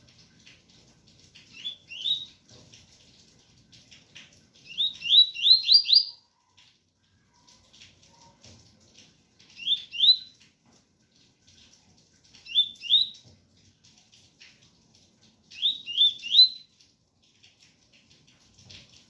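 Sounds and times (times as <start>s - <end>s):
faint rain patter: 0.0s - 19.0s
bird whistling song: 1.5s - 2.4s, 4.6s - 6.2s, 9.6s - 10.3s, 12.4s - 13.2s, 15.5s - 16.7s.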